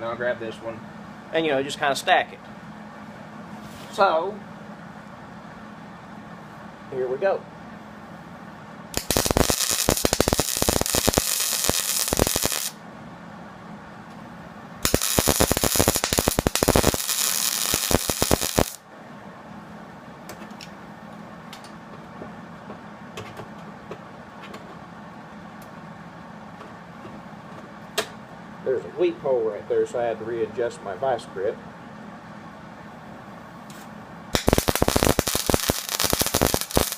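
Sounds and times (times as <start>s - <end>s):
welding arc crackling: 8.9s - 12.8s, 14.8s - 18.8s, 34.3s - 36.9s.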